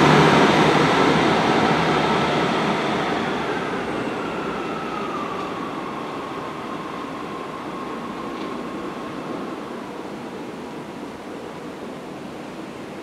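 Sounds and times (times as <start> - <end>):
diesel train pulling away: 0.0 - 10.8.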